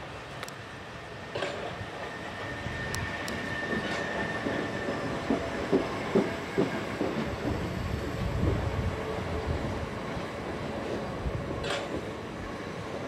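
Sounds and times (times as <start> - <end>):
train high whine: 0.0 - 13.0
train wheels clacking over joints: 3.0 - 8.7, 10.2 - 13.0.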